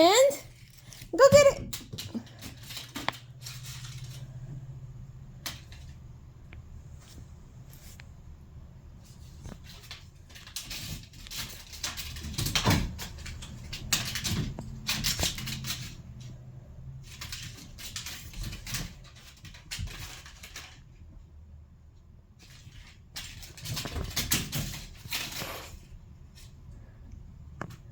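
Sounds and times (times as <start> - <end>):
cat paws and toy pattering: 0.2 - 4.8, 22.4 - 27.9.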